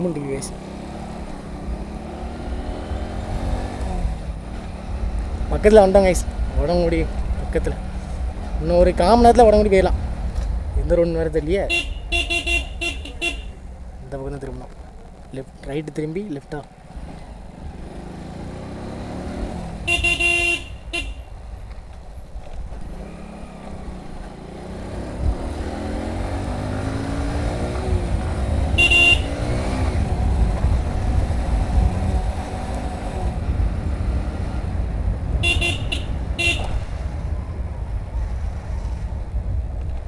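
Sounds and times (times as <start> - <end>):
motorcycle engine accelerating: 0.0 - 40.0
wind noise on microphone: 1.5 - 14.0, 19.3 - 40.0
motorcycle horn beeping: 11.6 - 14.0, 19.6 - 21.5, 25.5 - 31.3, 35.3 - 37.2.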